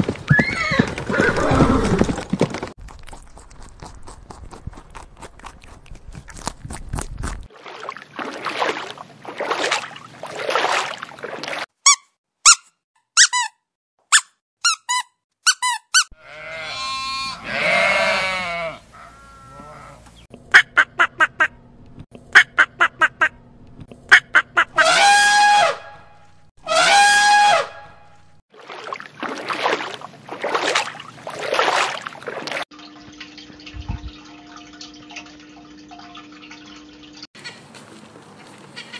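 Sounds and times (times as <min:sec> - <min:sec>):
duck quacks: 0:20.6 - 0:21.6, 0:22.3 - 0:23.4, 0:24.1 - 0:25.6
waterfowl honking: 0:24.1 - 0:32.6.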